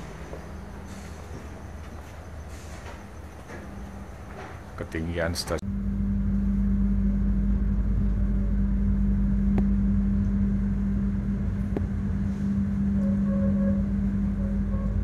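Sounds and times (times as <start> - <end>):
train carriage rumble: 0.0 - 5.6, 6.3 - 15.0
faint pitched tone: 5.7 - 15.0.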